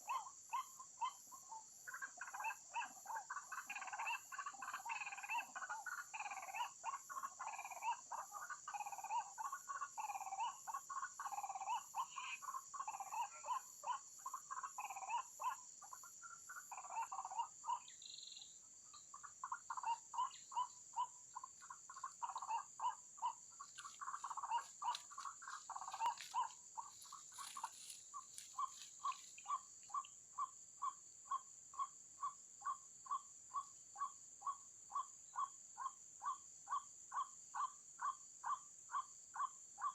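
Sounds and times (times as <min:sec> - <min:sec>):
waterhens croaking: 0:19.2 - 0:29.6.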